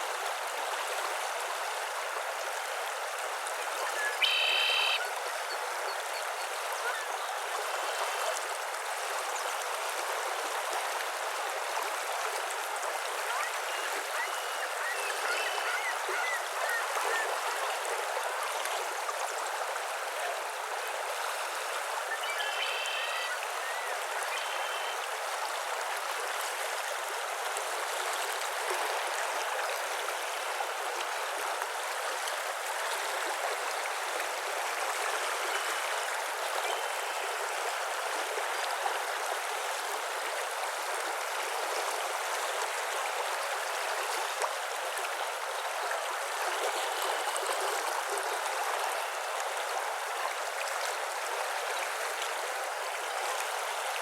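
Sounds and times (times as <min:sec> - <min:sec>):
running water rushing: 0:00.0 - 0:54.0
faint short bird calls: 0:03.8 - 0:05.2, 0:22.1 - 0:25.1.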